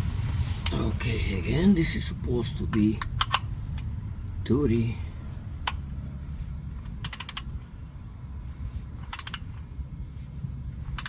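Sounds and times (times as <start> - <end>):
ratchet wrench clicking: 7.0 - 7.5, 9.0 - 9.5.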